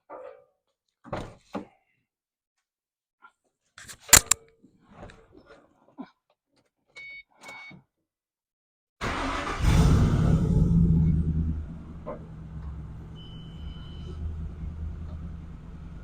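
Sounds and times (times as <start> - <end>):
sharp click: 3.8 - 4.4
car engine cranking and starting: 9.0 - 16.0.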